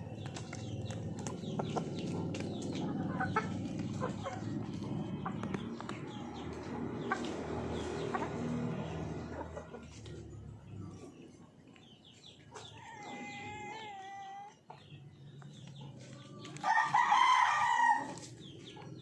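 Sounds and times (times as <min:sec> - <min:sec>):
hens clucking: 0:00.0 - 0:19.0
roosters crowing: 0:12.5 - 0:15.0, 0:15.6 - 0:18.9.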